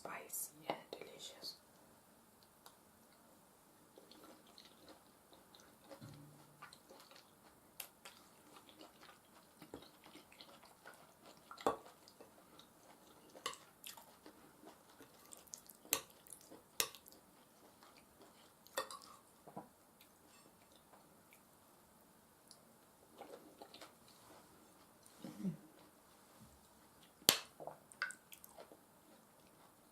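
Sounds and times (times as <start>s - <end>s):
wet chewing and mouth clicks: 3.9s - 21.5s, 27.0s - 29.9s.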